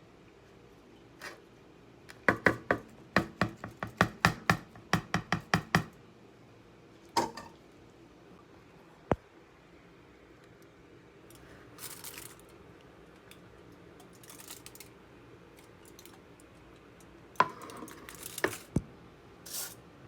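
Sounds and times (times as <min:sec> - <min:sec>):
knife chopping on board: 0:02.2 - 0:05.9.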